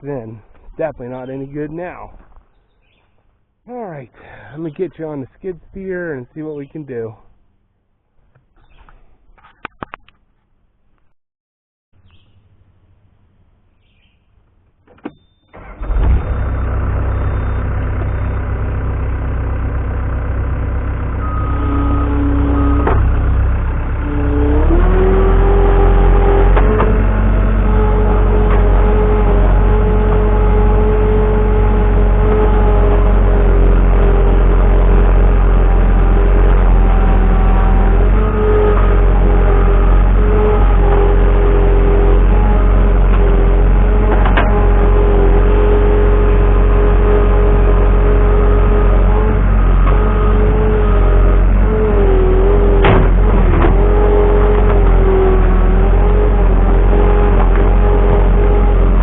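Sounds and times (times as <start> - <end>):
diesel engine running: 3.7 - 7.0, 15.5 - 59.0
skid steer whining: 15.1 - 59.0
sharp knocks: 52.8 - 53.8.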